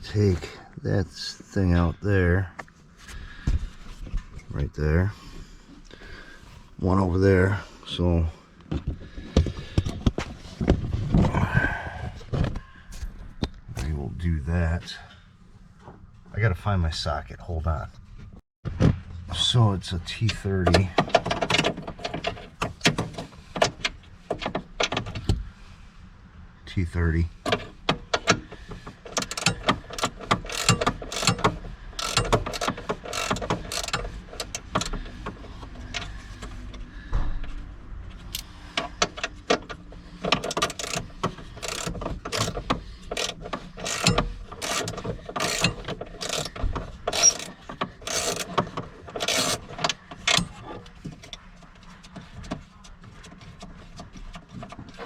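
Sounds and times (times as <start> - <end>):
hand ratchet clicking: 29.0 - 35.2, 40.2 - 50.6.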